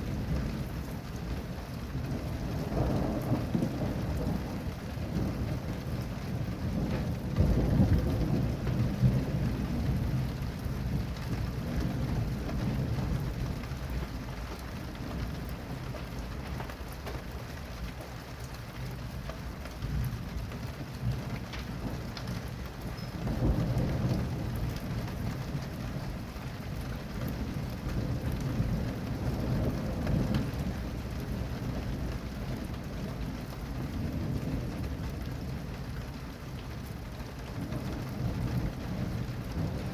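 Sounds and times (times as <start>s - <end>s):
thunder rumbling: 0.0s - 17.4s, 19.6s - 39.9s
steady rain falling: 0.0s - 39.9s.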